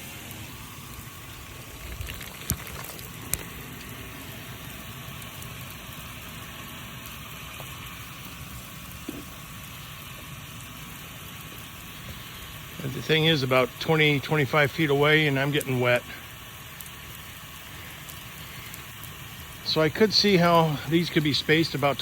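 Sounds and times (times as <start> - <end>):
lawn sprinkler spraying water: 0.0 - 22.0.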